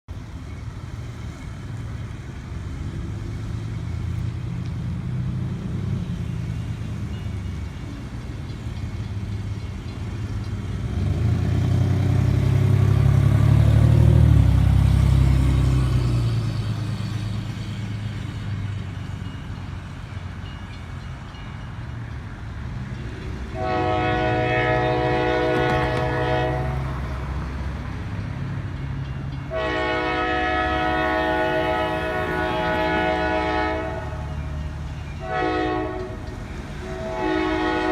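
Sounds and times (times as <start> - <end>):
locomotive engine rumble: 0.1 - 37.9
locomotive air horn chord: 23.5 - 27.0, 29.5 - 34.5, 35.2 - 36.2, 36.8 - 37.9.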